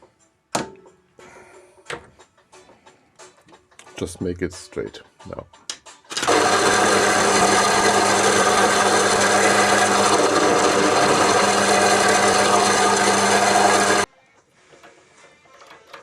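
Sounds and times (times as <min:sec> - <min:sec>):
power tool rasping on metal: 0:06.3 - 0:14.1.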